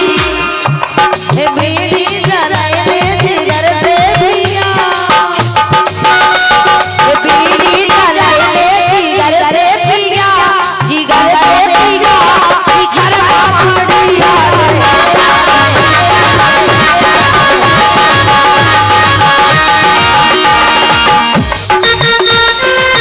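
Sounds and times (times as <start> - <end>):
drum beat: 0.0 - 23.0
ornamented folk melody: 13.2 - 23.0.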